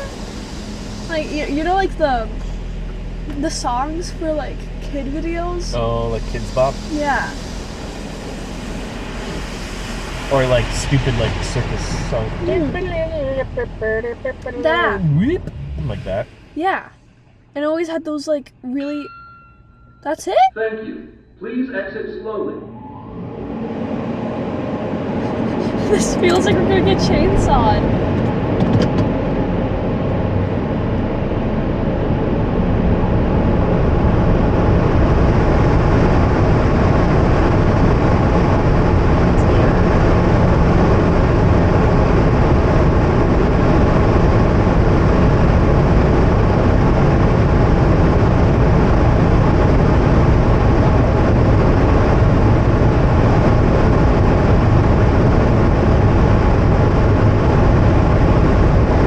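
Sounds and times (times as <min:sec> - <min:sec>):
car wash air blowers rushing: 0:00.0 - 0:16.2.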